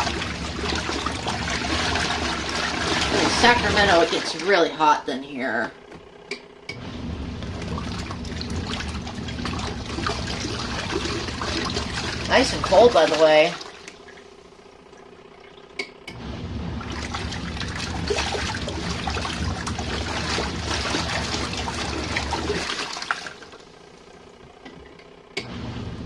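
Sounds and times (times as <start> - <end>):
water sloshing and splashing: 0.0 - 5.1, 6.7 - 26.0
washing machine motor hum: 0.0 - 26.0.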